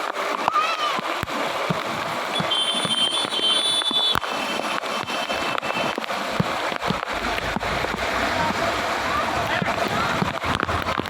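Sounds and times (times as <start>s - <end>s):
steady wash of traffic noise: 1.1s - 11.0s
vehicle engines running: 6.4s - 11.0s
deep rumble: 6.8s - 11.0s.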